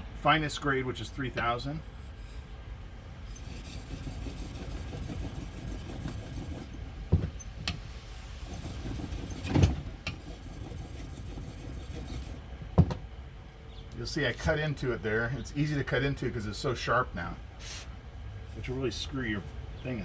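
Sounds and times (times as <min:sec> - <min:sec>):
tool scraping on whetstone: 0:01.8 - 0:02.5, 0:03.2 - 0:06.8, 0:08.4 - 0:12.4.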